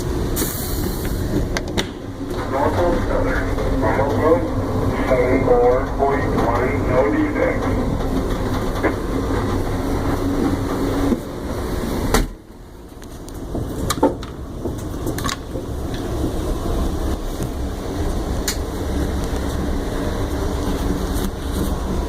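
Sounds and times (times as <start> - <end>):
train rumbling: 0.0 - 22.0
sharp clicks and knocks: 3.5 - 9.6, 13.0 - 16.4.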